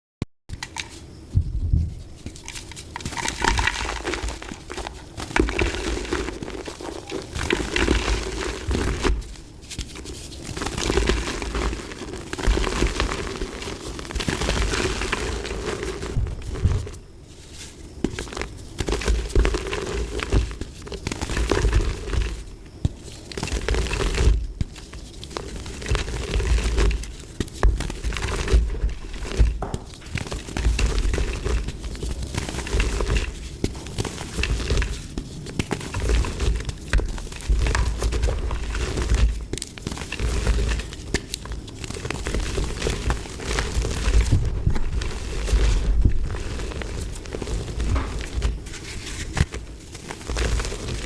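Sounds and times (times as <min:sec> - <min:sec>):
low thuds: 0:01.2 - 0:02.2
dried mud crunching: 0:02.1 - 0:51.0.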